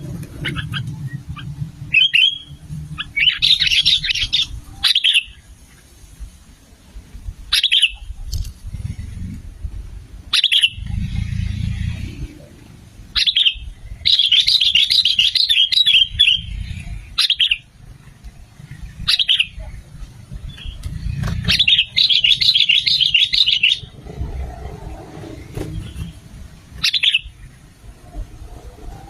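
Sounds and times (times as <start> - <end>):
bulbul calls: 0.0 - 5.4, 7.5 - 8.4, 10.3 - 12.2, 13.1 - 17.7, 18.7 - 24.6, 25.8 - 27.5
rapid chattering birdsong: 0.0 - 6.0, 7.5 - 29.0
low rumble: 8.1 - 14.1, 23.8 - 29.0.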